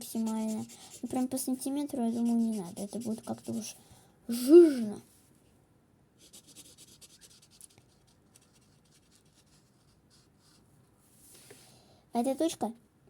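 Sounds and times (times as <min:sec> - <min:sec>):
felt marker rubbing on paper: 0:00.0 - 0:03.8.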